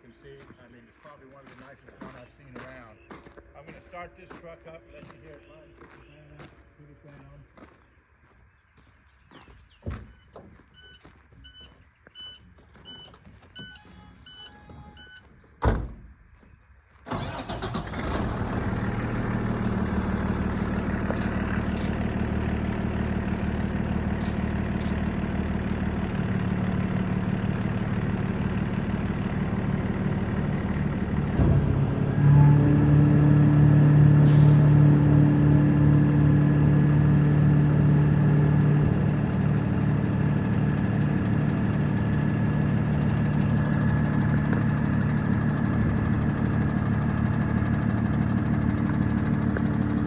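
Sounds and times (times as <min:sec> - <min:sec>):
truck warning chime beeping: 0:10.8 - 0:15.3
diesel truck engine idling: 0:17.1 - 0:50.0.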